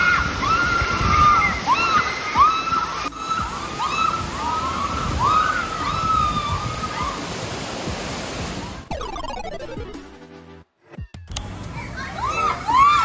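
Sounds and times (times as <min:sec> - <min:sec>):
water rushing and splashing: 0:00.0 - 0:10.0.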